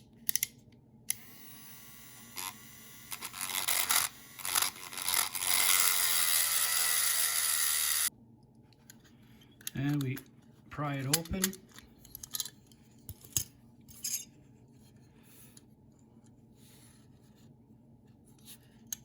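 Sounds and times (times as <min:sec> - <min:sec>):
rotary tool grinding: 0:01.2 - 0:08.1.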